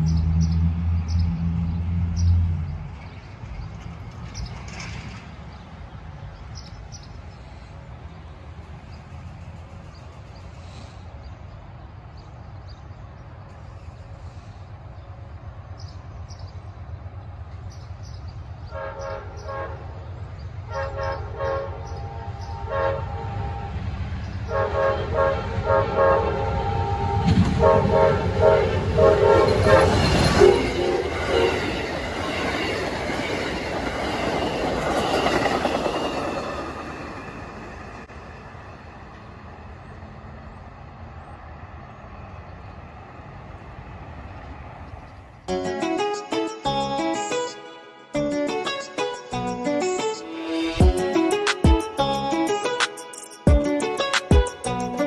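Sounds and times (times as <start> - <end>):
wheels clacking on rails: 0.0 - 7.1, 8.3 - 11.7, 24.1 - 39.8
train passing with deep rumble: 0.0 - 55.0
train air horn blasts: 18.7 - 20.0, 20.7 - 31.9.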